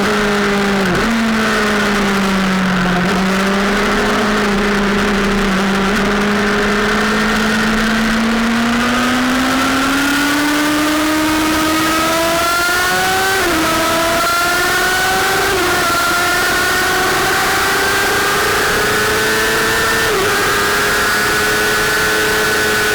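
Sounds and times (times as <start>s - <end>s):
motorcycle engine accelerating: 0.0s - 22.9s
steady rushing noise: 0.8s - 9.4s.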